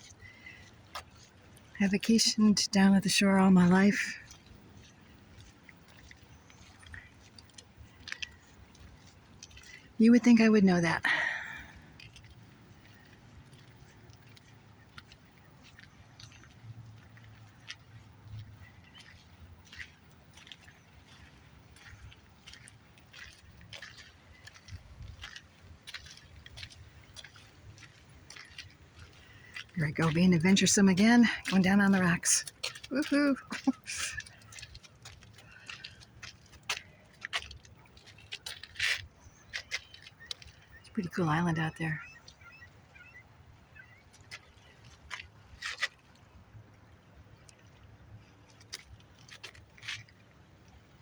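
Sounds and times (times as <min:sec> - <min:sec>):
water lapping at shore: 0:00.0 - 0:51.0
footsteps on rocks: 0:18.7 - 0:40.7.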